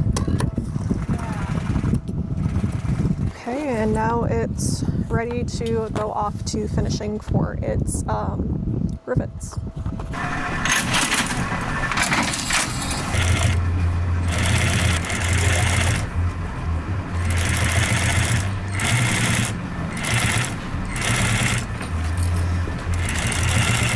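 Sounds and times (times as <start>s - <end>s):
sewing machine stitching: 10.2s - 16.1s, 17.2s - 23.9s.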